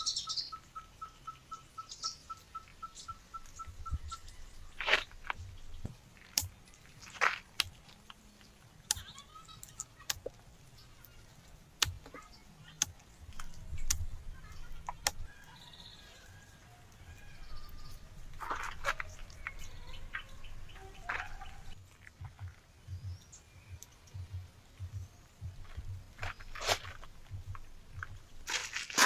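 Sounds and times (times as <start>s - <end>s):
faint bird chirps: 0.0s - 4.8s.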